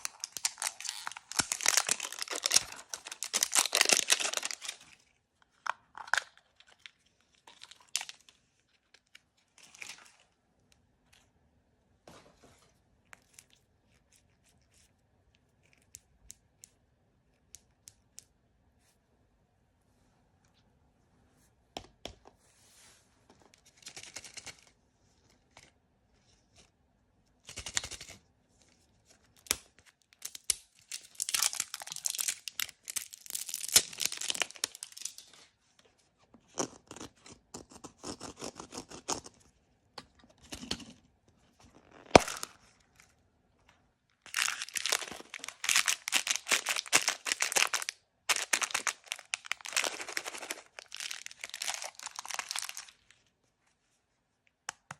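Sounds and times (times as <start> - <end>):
packaging tearing and crinkling: 0.0 - 5.0, 30.2 - 35.4, 42.0 - 42.6, 44.3 - 53.2.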